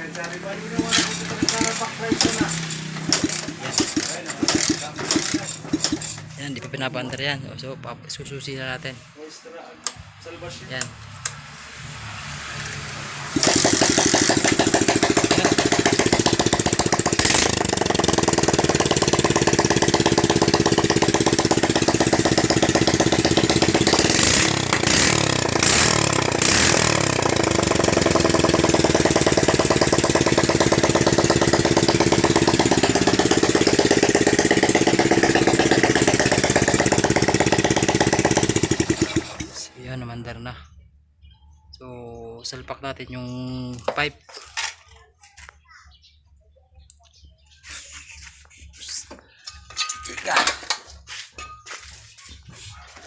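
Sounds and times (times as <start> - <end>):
motorcycle engine revving and idling: 0.0 - 8.6, 9.8 - 40.4.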